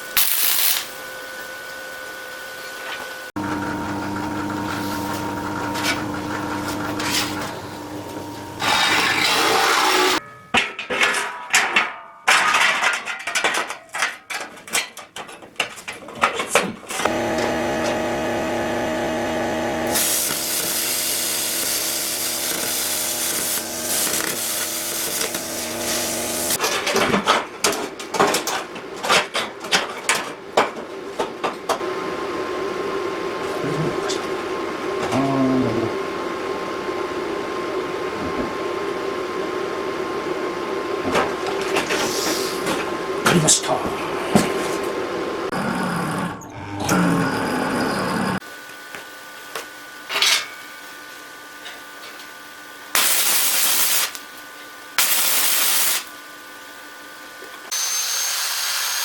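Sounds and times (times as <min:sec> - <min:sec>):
welding crackling and clicking: 0:00.1 - 0:01.0, 0:19.9 - 0:26.6, 0:53.0 - 0:54.4, 0:55.0 - 0:56.1
steady humming tone: 0:03.4 - 0:09.3.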